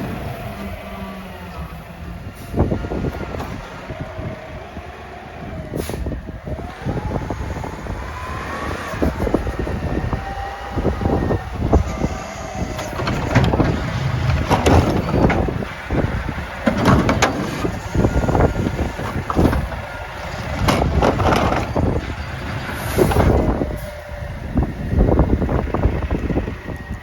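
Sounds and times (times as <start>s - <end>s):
garbage truck running: 0.0s - 27.0s
wind buffeting microphone: 0.0s - 27.0s.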